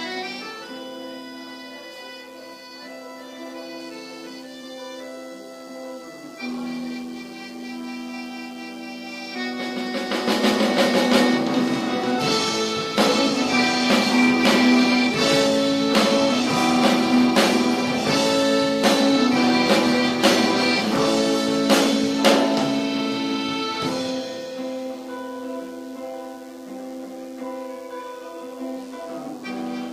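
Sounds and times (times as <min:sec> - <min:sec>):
held keyboard-like notes: 0:00.0 - 0:29.9
drum or cymbal hits: 0:10.1 - 0:24.9.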